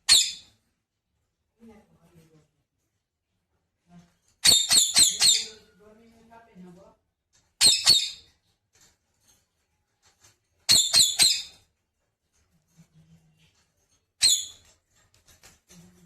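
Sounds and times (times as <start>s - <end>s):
parrot squawking: 0.0s - 0.5s, 4.4s - 5.6s, 7.6s - 8.2s, 10.7s - 11.6s, 14.2s - 14.6s.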